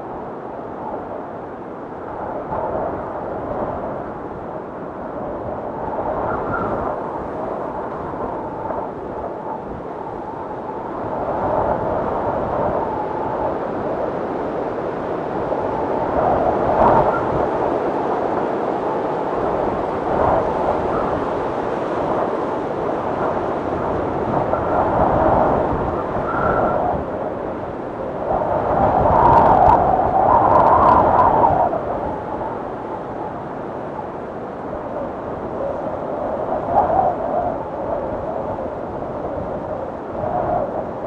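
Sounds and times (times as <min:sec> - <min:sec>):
blizzard wind gusting: 0:00.0 - 0:41.0.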